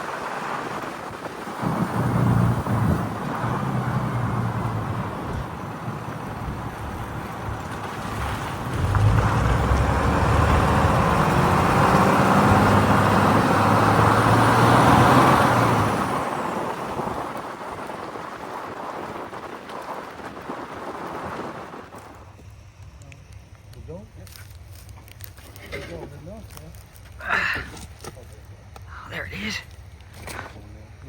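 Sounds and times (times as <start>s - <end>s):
vehicle engine running: 1.6s - 16.8s.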